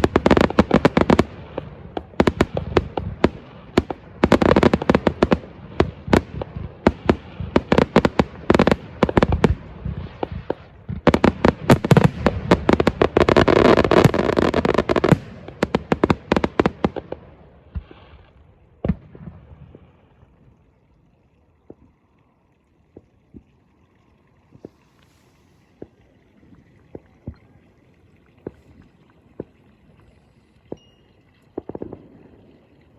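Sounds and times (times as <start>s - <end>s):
fireworks bangs and crackles: 0.0s - 20.5s, 31.5s - 32.6s.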